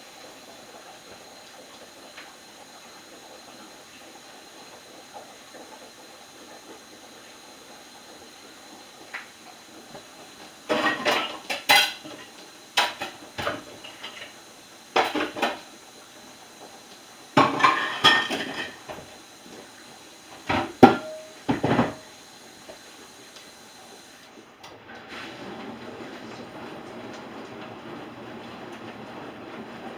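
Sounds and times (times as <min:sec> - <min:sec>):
dishes and cutlery clattering: 0:10.7 - 0:13.2, 0:17.4 - 0:19.0.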